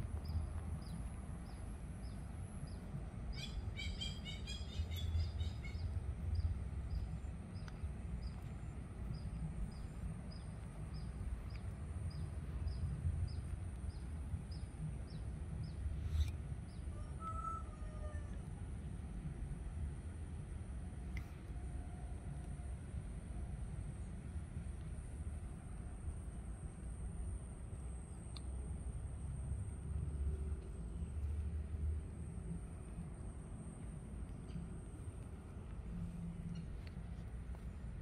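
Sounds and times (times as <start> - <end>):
steady low rumble: 0.0 - 17.0, 18.3 - 38.0
faint high ticks: 6.9 - 14.1, 21.1 - 21.6, 28.1 - 28.7.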